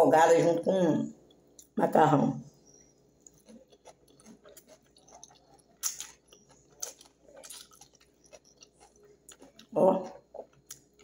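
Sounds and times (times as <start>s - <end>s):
person chewing wetly: 2.6s - 11.0s.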